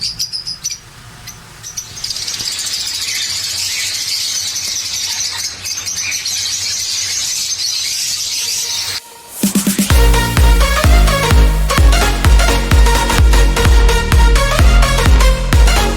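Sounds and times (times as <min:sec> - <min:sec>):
small birds chirping: 0:00.0 - 0:09.2.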